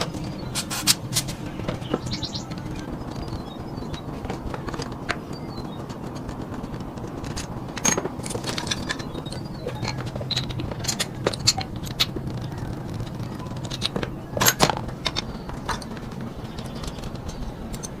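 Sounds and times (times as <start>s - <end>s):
steady low hum: 0.0s - 18.0s
metal tools clinking and scraping: 7.0s - 12.2s.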